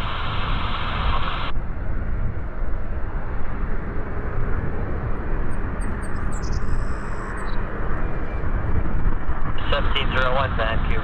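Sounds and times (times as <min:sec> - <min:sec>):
wind on microphone: 0:00.0 - 0:11.0
jet airliner rushing noise: 0:07.2 - 0:11.0.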